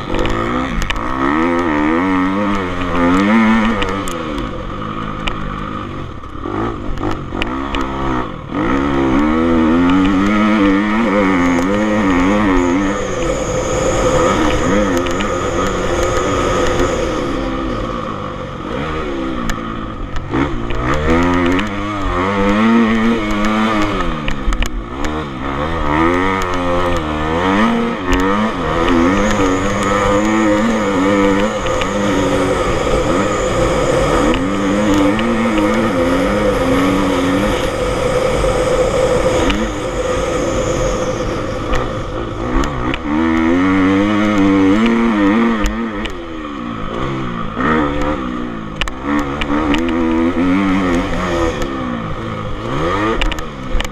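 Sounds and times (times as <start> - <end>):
motorcycle engines revving: 0.0 - 53.9.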